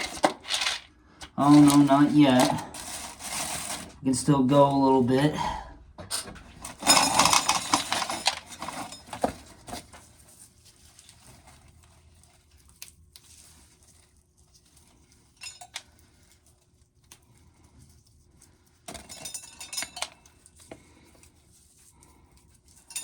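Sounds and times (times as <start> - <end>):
corn kernels rattling into metal can: 0.0 - 4.0, 6.6 - 9.4.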